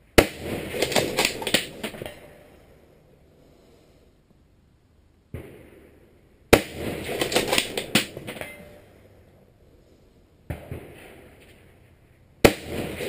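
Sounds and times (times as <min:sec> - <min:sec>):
rifle shot: 0:00.1 - 0:02.5, 0:05.3 - 0:08.9, 0:10.5 - 0:11.8, 0:12.4 - 0:13.0.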